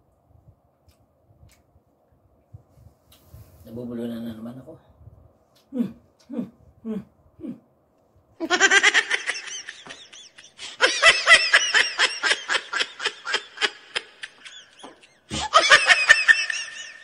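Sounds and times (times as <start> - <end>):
high-pitched giggling: 8.4 - 17.0.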